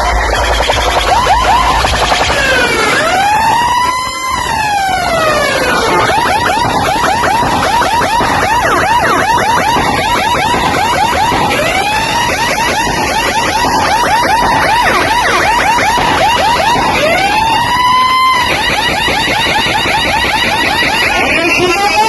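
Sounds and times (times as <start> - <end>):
heavy wash of noise: 0.0 - 21.4
rising siren sweep: 0.0 - 22.0
siren whoops through speakers: 0.0 - 22.0.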